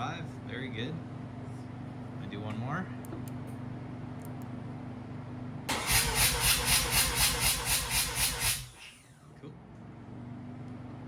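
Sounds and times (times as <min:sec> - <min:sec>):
engine cranking on starter: 0:05.7 - 0:09.2.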